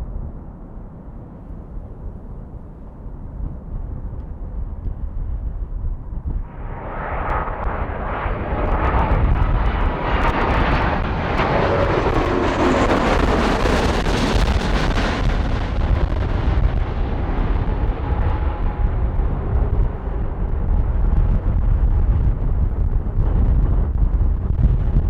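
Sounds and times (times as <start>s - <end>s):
jet airliner passing: 5.3s - 25.0s.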